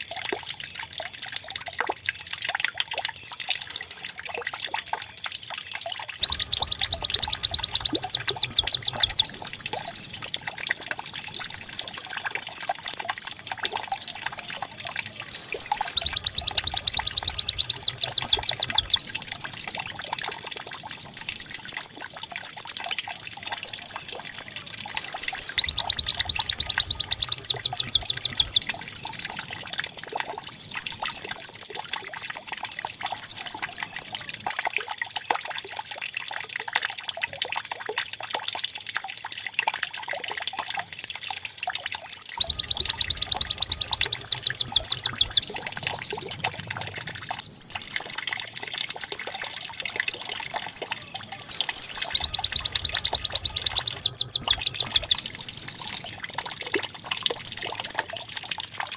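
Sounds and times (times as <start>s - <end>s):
trickle of running water: 0.0s - 58.9s
bird singing trills and whistles: 6.2s - 34.2s, 42.4s - 58.9s.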